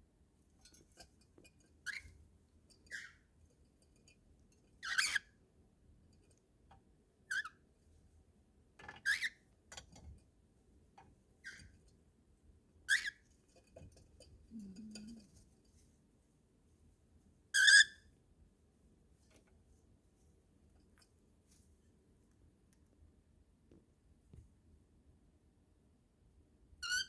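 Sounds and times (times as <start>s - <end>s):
cockatiel chirping: 17.6s - 18.0s.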